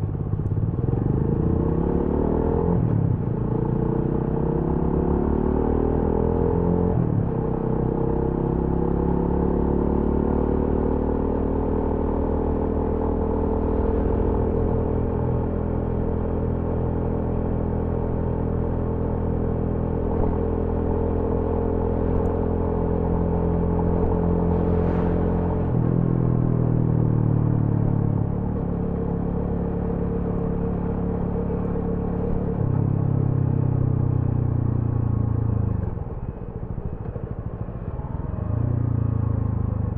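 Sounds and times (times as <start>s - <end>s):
motorcycle engine running: 19.8s - 39.9s.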